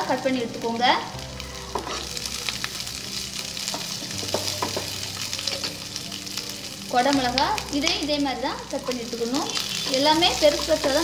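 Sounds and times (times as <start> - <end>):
food sizzling in hot oil: 0.0 - 11.0
wooden spatula knocking on pan: 4.2 - 5.0.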